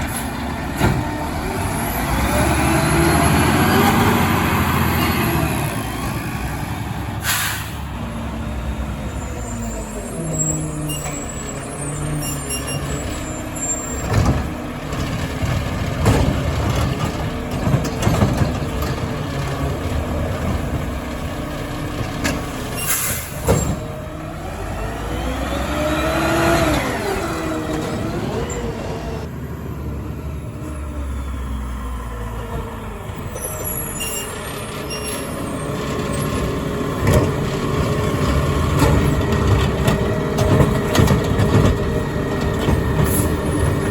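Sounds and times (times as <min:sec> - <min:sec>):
engine revving: 0:00.0 - 0:10.8, 0:23.8 - 0:29.3
diesel engine running: 0:00.0 - 0:43.9
air brakes hissing: 0:07.2 - 0:07.9, 0:22.8 - 0:23.7.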